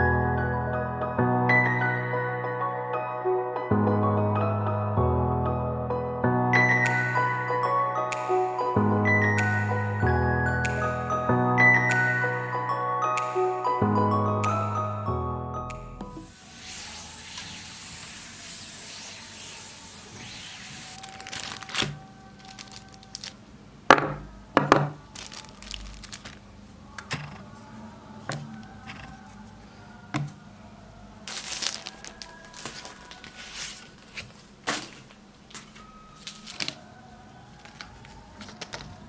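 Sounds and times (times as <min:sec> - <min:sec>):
crinkling: 0:20.7 - 0:23.4, 0:24.2 - 0:27.7, 0:31.2 - 0:36.9, 0:37.5 - 0:39.0.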